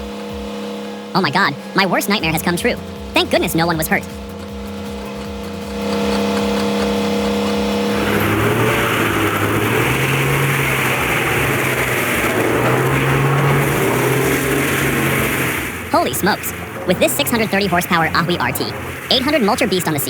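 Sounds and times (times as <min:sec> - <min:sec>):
heavy machine engine running: 0:00.0 - 0:20.0
loud rough grinding: 0:00.0 - 0:20.0.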